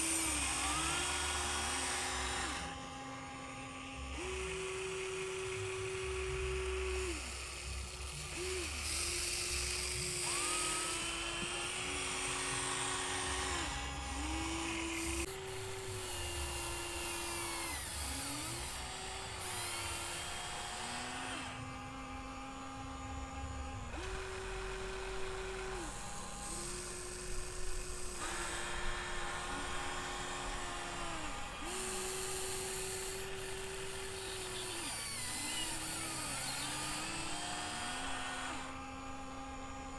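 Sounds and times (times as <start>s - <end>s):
toy excavator electric motors whining: 0.0s - 39.9s.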